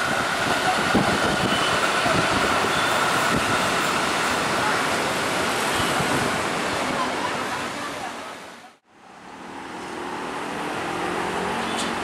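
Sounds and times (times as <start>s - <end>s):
electric train running noise: 0.0s - 6.6s.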